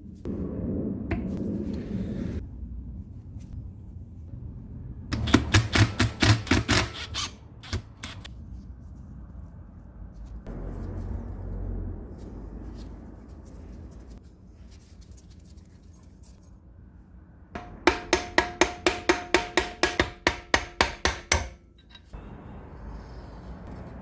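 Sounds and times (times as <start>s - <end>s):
low muffled noise: 8.3s - 18.5s
hammer striking metal: 17.6s - 22.2s.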